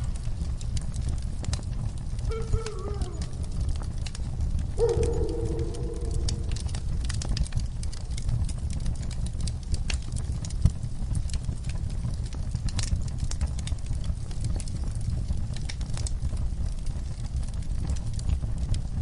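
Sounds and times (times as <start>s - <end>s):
campfire crackling and popping: 0.0s - 19.0s
fire low rumble: 0.0s - 19.0s.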